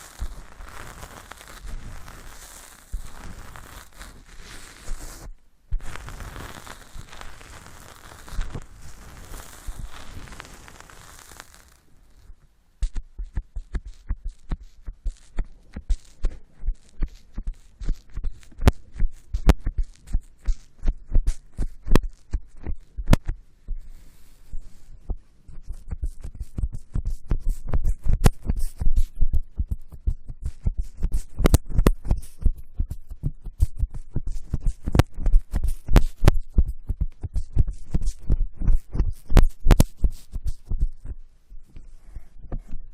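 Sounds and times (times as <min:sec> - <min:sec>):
soft hiss: 0:00.0 - 0:42.9
dull thumps on microphone: 0:12.8 - 0:16.4.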